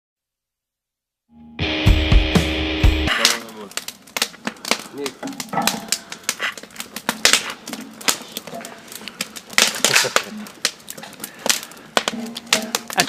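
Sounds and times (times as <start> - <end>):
wood fire crackling and popping: 3.0 - 13.0.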